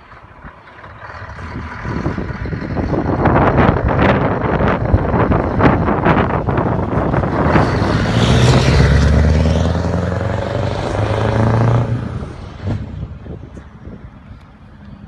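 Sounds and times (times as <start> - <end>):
diesel truck driving past: 0.0 - 15.0.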